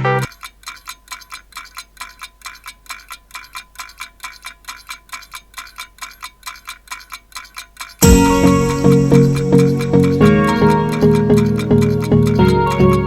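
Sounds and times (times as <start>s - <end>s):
fast ticking with chime-like ring: 0.3s - 13.0s.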